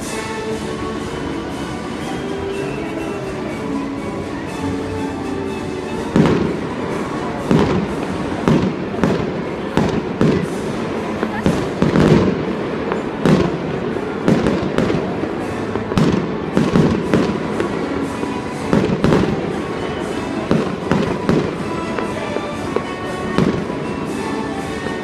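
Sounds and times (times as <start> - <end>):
music playing: 0.0 - 25.0
fireworks booms and cracks: 5.9 - 25.0.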